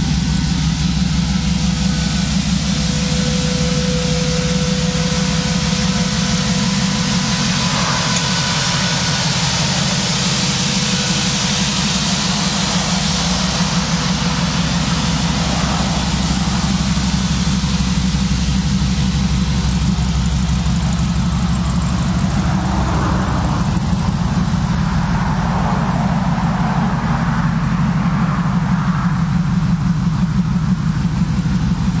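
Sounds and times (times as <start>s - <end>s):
truck engine idling: 0.0s - 32.0s.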